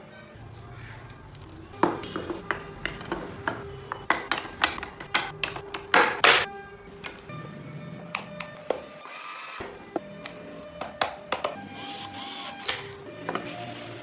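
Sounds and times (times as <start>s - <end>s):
background music: 0.0s - 14.0s
carving tools tapping on wood: 2.4s - 7.2s.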